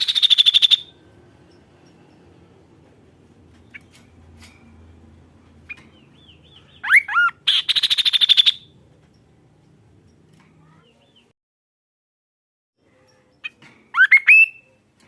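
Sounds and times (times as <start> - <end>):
bird whistles: 0.0 - 0.9, 6.8 - 8.7, 14.0 - 14.7.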